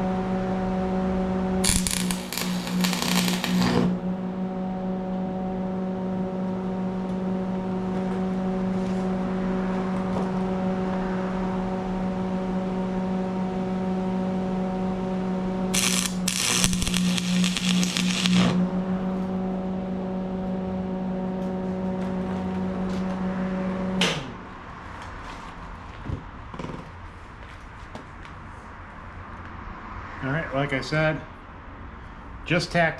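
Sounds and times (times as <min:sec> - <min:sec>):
welding arc crackling: 0:01.6 - 0:04.0, 0:15.7 - 0:18.7
welder machine hum: 0:01.6 - 0:08.4, 0:15.6 - 0:24.1.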